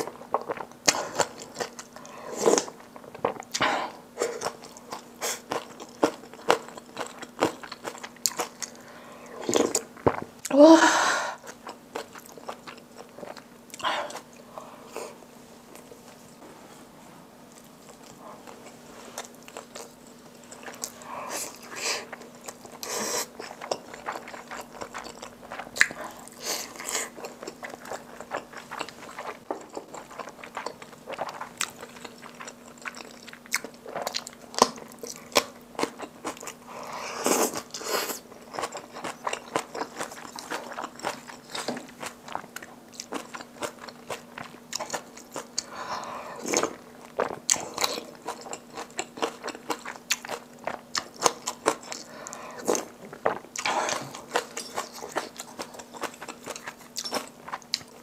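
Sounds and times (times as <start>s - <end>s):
chewing and wet mouth sounds: 0.0s - 3.6s, 4.2s - 10.5s, 11.4s - 15.1s, 17.5s - 58.0s.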